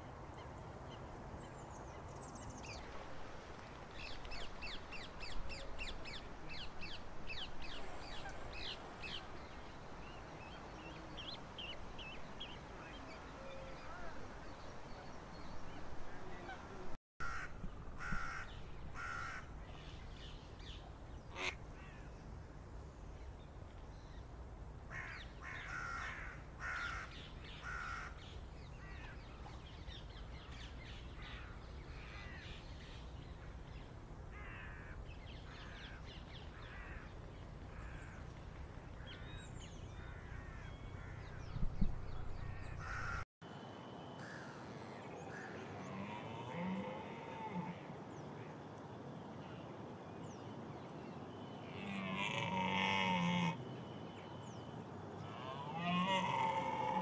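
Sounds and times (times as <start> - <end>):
low background noise: 0.0 - 57.0
birds calling: 3.9 - 43.3
deer stag roaring: 45.8 - 47.9, 51.8 - 53.6, 55.2 - 57.0.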